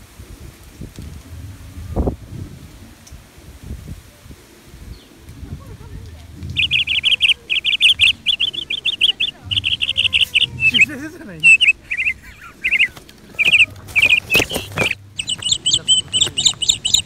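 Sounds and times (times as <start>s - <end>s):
bird chirping: 6.4s - 17.0s.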